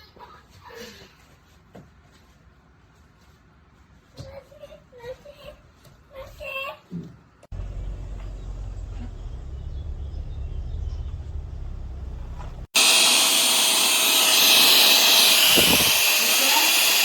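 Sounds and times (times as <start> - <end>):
low rumble: 7.5 - 12.7
handheld vacuum cleaner running: 12.0 - 17.0.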